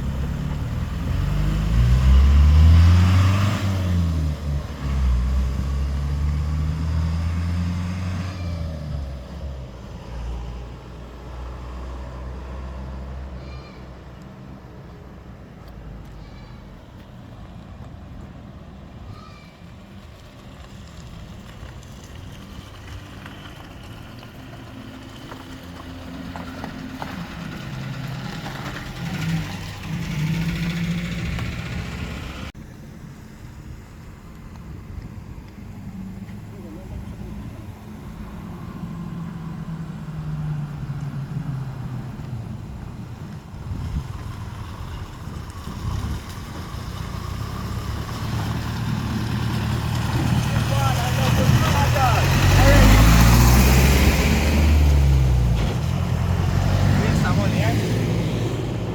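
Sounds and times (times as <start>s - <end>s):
road noise: 0.0s - 58.9s
vehicle engine running: 20.0s - 58.9s.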